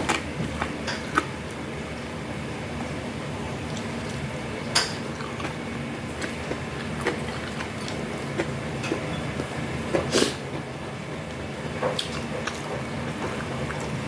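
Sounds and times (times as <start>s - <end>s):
chewing crunches: 5.1s - 9.1s.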